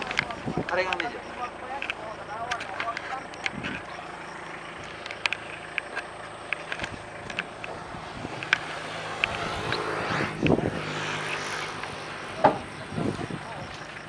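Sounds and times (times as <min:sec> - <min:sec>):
vehicle engine running: 0:00.0 - 0:14.0
sharp clicks and knocks: 0:04.8 - 0:10.6.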